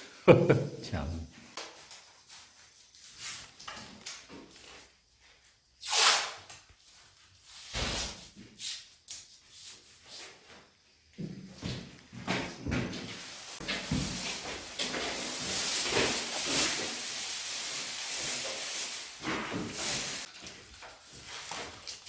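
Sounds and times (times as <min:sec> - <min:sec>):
plastic sheeting rustling: 0:13.0 - 0:22.0.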